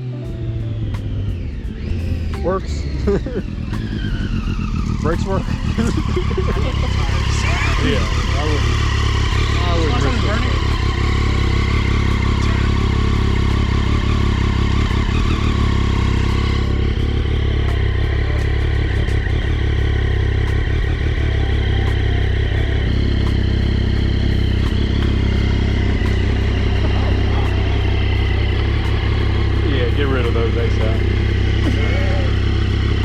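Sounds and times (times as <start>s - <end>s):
motorcycle engine running steadily: 0.0s - 33.0s.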